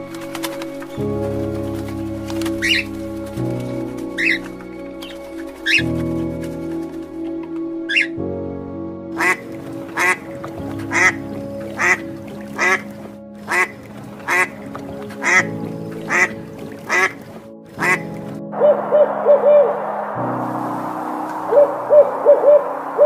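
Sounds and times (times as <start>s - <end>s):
background music: 0.0s - 23.0s
duck quacking: 9.2s - 9.4s, 10.0s - 10.2s, 10.9s - 11.2s, 11.8s - 12.0s, 12.6s - 12.8s, 13.5s - 14.6s, 15.2s - 15.5s, 16.1s - 17.2s, 17.8s - 18.0s.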